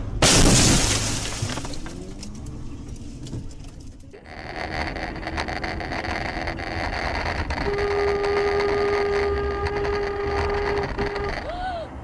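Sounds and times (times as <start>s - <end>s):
car road and engine rumble: 0.0s - 12.0s
car horn: 7.6s - 11.6s.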